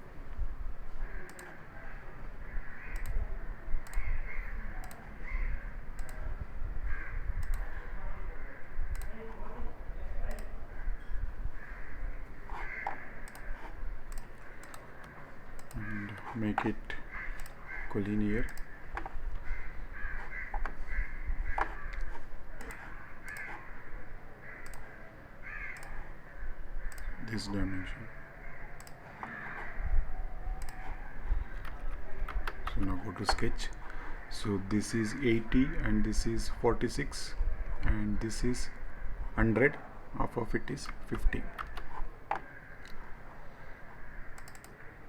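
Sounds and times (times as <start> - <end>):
computer mouse clicking: 1.1 - 1.6, 2.8 - 3.2, 3.8 - 4.1, 4.8 - 5.0, 5.9 - 6.3, 7.4 - 7.7, 8.9 - 9.2, 10.3 - 10.5, 12.5 - 23.8, 24.5 - 26.1, 26.8 - 27.4, 28.5 - 29.9, 30.5 - 34.0, 40.8 - 43.0, 44.3 - 44.9
crows cawing: 2.5 - 3.0, 4.0 - 4.6, 5.2 - 5.8, 6.8 - 7.4, 11.5 - 13.8, 15.8 - 31.8, 42.3 - 42.9, 43.7 - 45.0.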